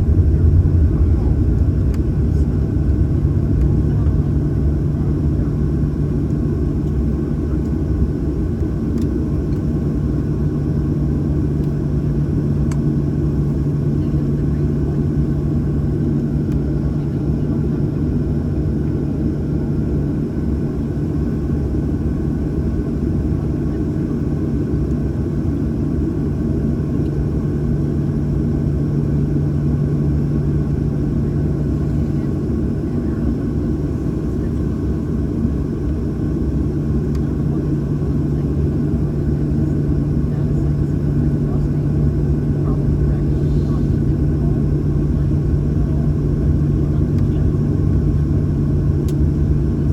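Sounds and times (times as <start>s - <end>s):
airplane cabin drone: 0.0s - 49.9s.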